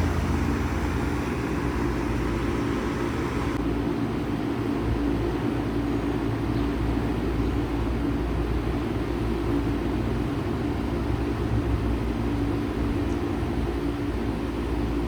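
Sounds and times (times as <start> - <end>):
heat pump fan air rushing: 0.0 - 3.6
low steady hum: 0.0 - 3.6.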